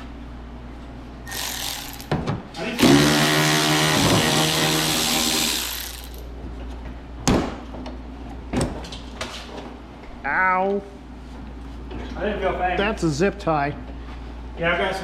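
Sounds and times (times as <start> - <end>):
handheld power tool running: 1.3 - 2.2, 2.8 - 6.3.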